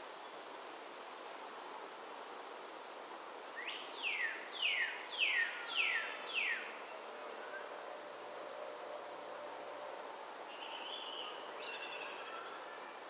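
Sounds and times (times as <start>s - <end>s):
faint outdoor background hiss: 0.0s - 13.0s
songbird singing: 3.6s - 7.9s, 10.2s - 13.0s.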